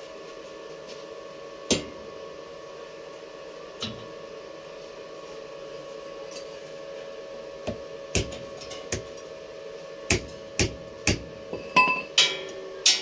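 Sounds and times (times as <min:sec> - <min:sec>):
machine hum: 0:00.0 - 0:13.0
hammer striking steel: 0:10.1 - 0:13.0.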